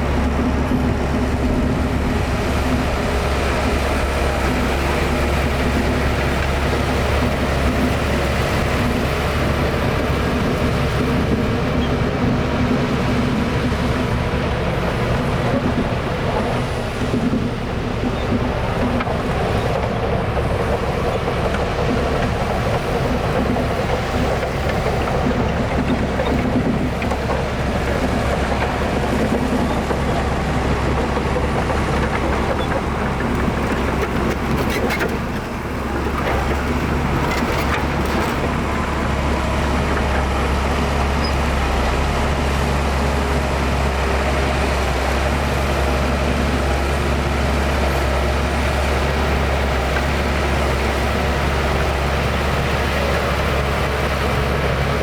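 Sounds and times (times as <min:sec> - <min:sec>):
heavy diesel engine under load: 0:00.0 - 0:55.0.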